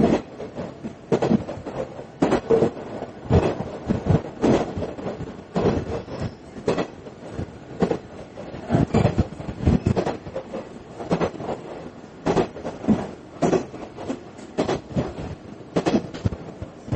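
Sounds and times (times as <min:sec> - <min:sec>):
train running rumble: 0:00.0 - 0:16.9
train wheels clattering over joints: 0:00.0 - 0:16.9.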